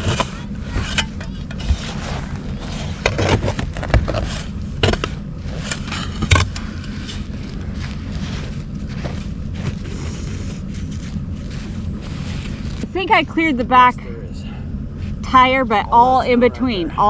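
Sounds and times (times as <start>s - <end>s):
shovel scraping snow and ice: 0.0s - 12.9s
low engine hum: 0.0s - 17.0s.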